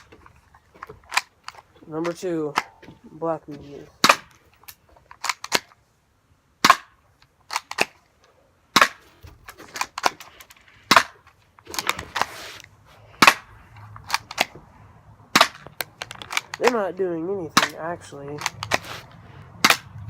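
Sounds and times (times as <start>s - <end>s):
airsoft pistol cracks: 4.0s - 5.7s, 6.6s - 8.0s, 8.7s - 9.0s, 13.2s - 13.5s, 15.3s - 16.8s, 19.6s - 20.0s.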